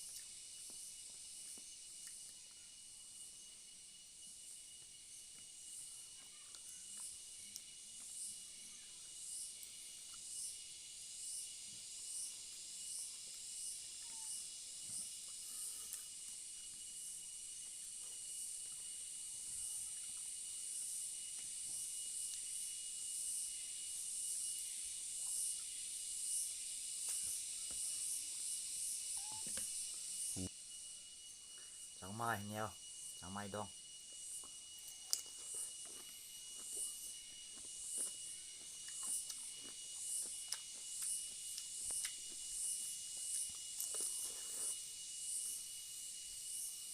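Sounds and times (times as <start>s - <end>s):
high hiss: 7.1s - 38.7s
chewing crunches: 34.4s - 36.9s, 37.5s - 38.2s, 38.8s - 42.6s, 43.2s - 44.8s.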